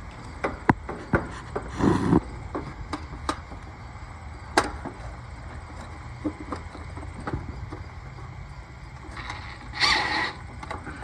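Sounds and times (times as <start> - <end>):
scraping burst: 1.7 - 2.3.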